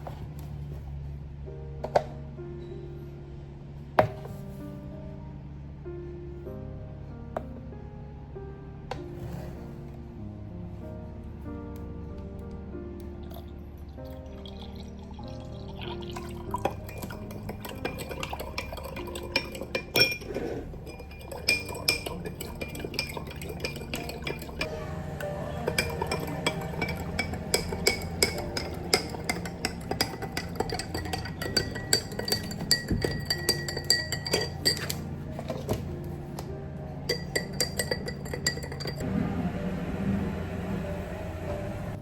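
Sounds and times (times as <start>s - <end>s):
soft background music: 0.0s - 42.0s
dishes and glassware clinking: 16.2s - 24.7s, 25.3s - 36.2s, 37.0s - 39.0s.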